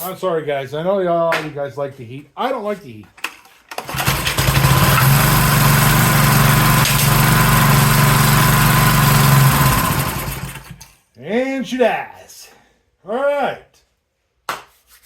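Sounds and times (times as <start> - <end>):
small engine starting and running: 3.7 - 10.9.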